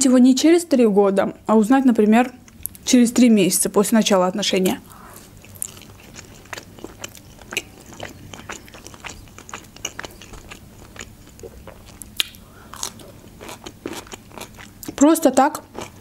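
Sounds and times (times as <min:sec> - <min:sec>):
person chewing bread: 0:04.9 - 0:15.0, 0:15.6 - 0:16.0
small mouth clicks: 0:11.3 - 0:13.2.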